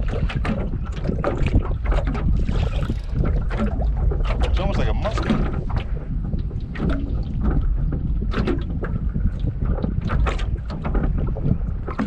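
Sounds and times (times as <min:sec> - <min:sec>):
wind buffeting microphone: 0:00.0 - 0:12.0
sharp clicks and knocks: 0:02.9 - 0:06.0.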